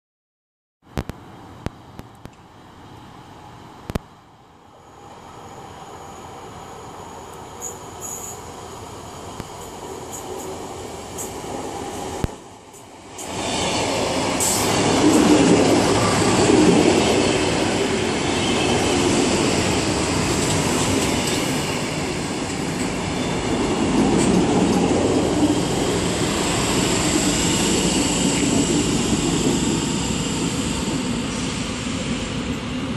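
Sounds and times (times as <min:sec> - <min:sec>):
train wheels rumbling on rails: 0:06.3 - 0:32.9
high-pitched brake squeal: 0:07.6 - 0:08.5.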